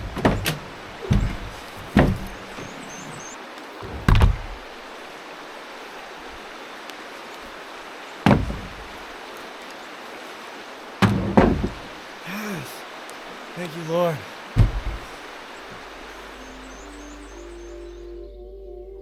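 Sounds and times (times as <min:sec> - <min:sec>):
heavy thumps: 0:03.8 - 0:04.6, 0:14.6 - 0:15.0
steady rushing hiss: 0:11.6 - 0:18.0.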